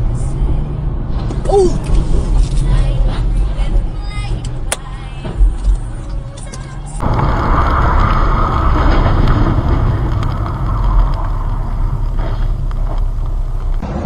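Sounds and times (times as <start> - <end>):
road and wind rumble: 0.0 - 14.0.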